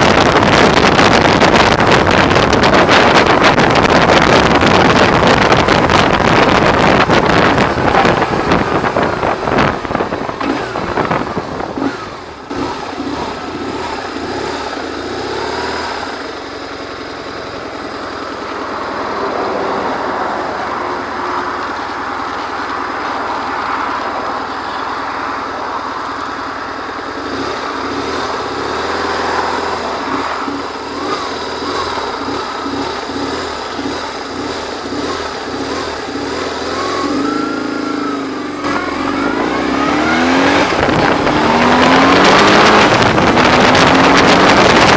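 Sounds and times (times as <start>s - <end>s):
wind noise on microphone: 0.0s - 16.2s, 34.9s - 44.9s
motorcycle engine running: 0.0s - 44.9s.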